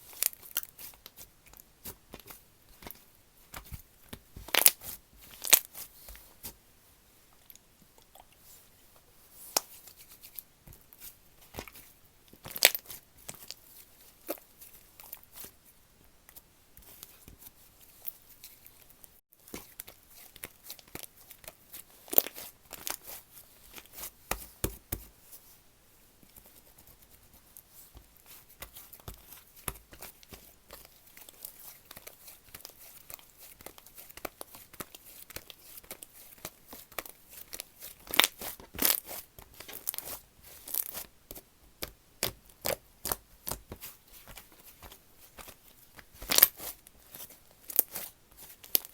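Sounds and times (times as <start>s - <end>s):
slime squishing: 27.4s - 41.4s, 42.2s - 48.9s.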